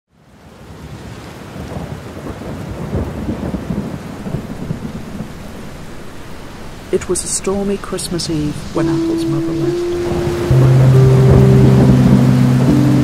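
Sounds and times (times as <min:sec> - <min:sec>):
rain falling: 0:00.3 - 0:13.0
rolling thunder: 0:01.6 - 0:08.9, 0:09.8 - 0:13.0.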